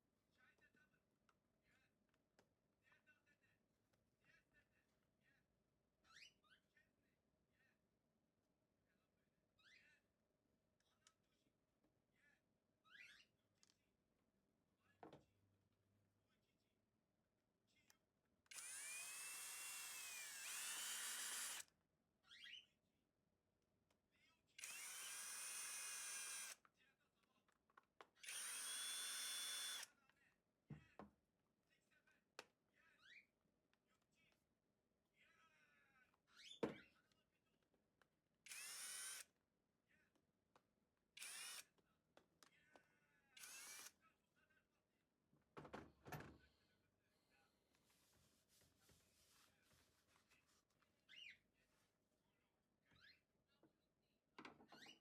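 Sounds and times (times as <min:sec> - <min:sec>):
small electric motor whining: 0:18.5 - 0:21.6, 0:24.6 - 0:26.6, 0:28.2 - 0:29.8, 0:38.5 - 0:39.2, 0:41.2 - 0:41.6, 0:43.4 - 0:43.9.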